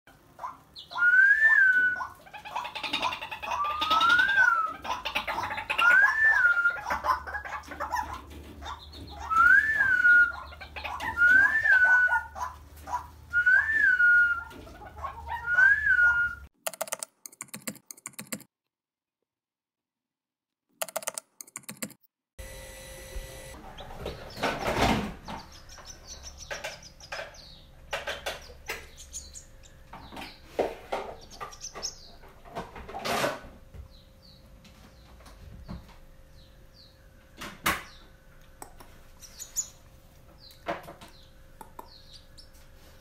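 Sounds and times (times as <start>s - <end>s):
bird whistled calls: 0.8s - 2.1s, 3.6s - 4.8s, 5.8s - 7.0s, 9.1s - 12.4s, 13.3s - 14.5s, 15.4s - 16.5s
bird clicking and grunting: 16.6s - 18.5s, 20.8s - 22.0s.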